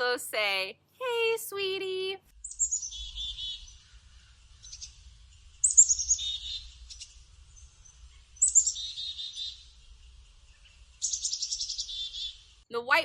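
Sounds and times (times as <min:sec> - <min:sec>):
chickadee calling: 0:02.4 - 0:12.6.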